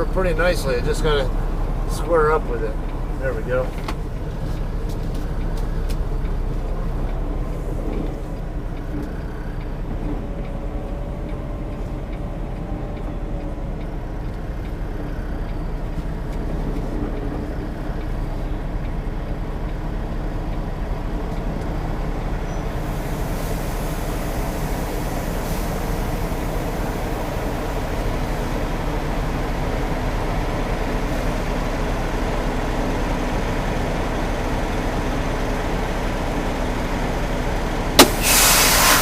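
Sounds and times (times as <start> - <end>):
diesel truck engine droning: 0.0 - 39.0
hiss: 22.8 - 27.0, 38.0 - 39.0.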